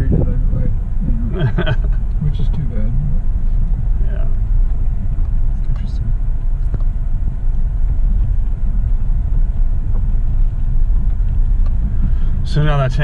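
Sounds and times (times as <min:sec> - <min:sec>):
loud low rumble: 0:00.0 - 0:13.0.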